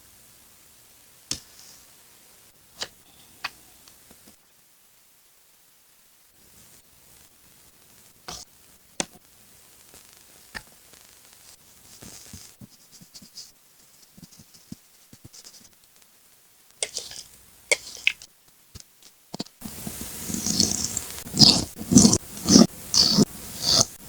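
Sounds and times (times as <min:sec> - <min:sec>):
scraping on paper: 0:19.6 - 0:24.0.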